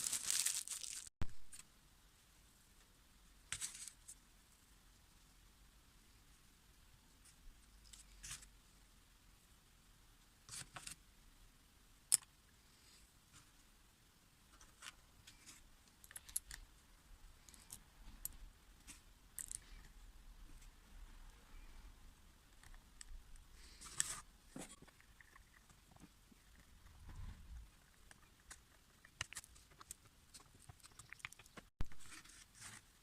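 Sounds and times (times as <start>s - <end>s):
small parts clicking and tapping: 15.3s - 16.7s, 19.3s - 19.9s, 28.0s - 31.8s.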